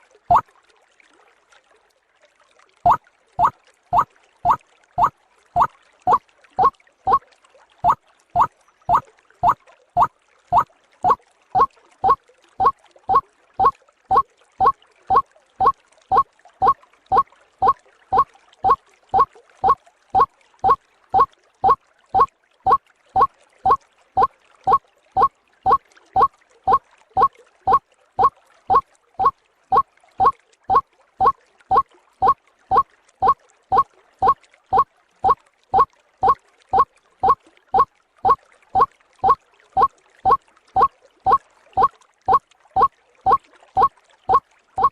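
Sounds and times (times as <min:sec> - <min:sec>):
waterhen calling: 0:02.9 - 0:07.2, 0:07.8 - 0:09.6, 0:40.3 - 0:42.4.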